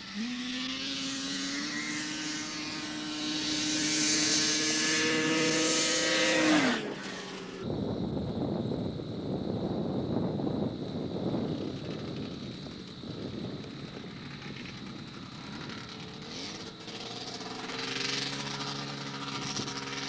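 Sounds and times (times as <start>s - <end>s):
racing snowmobile engine: 0.0s - 7.7s, 13.6s - 20.0s.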